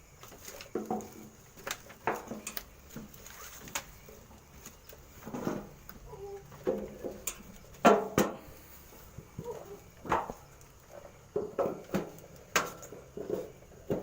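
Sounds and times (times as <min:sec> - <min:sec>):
irregular knocks and clatters: 0:00.3 - 0:03.1, 0:09.1 - 0:14.0.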